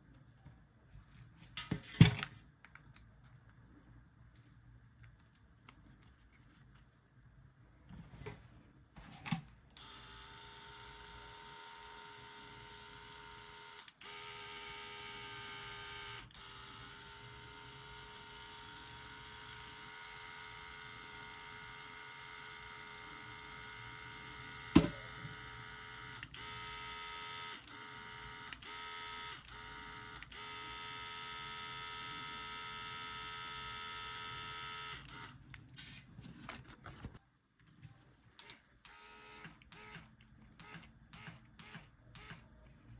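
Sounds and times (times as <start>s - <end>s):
small electric motor whining: 9.8s - 35.4s, 38.9s - 42.4s.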